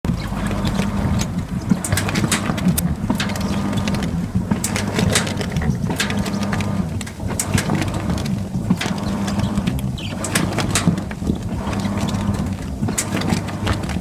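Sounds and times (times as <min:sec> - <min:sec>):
washing machine motor hum: 0:00.0 - 0:14.0.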